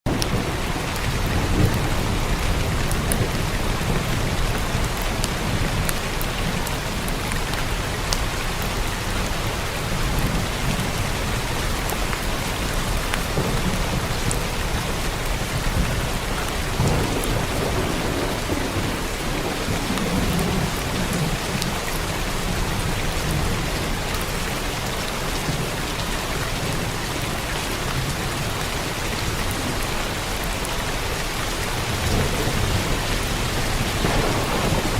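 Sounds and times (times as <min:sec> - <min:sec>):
heavy rain on a roof: 0:00.0 - 0:34.9
low rolling thunder: 0:00.1 - 0:08.6, 0:09.7 - 0:24.3, 0:31.0 - 0:34.9.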